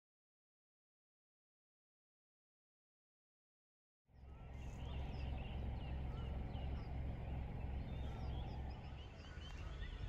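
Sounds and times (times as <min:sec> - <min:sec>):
birds chirping: 0:04.2 - 0:10.0
steady low rumble: 0:04.2 - 0:10.0.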